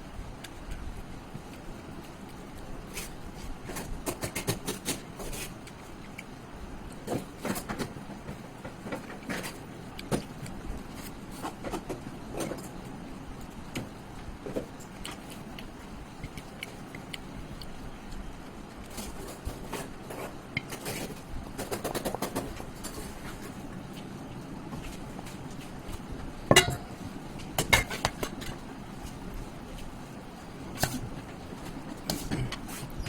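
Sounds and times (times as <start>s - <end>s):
low background noise: 0.0s - 33.0s
chewing and smacking: 14.5s - 19.8s.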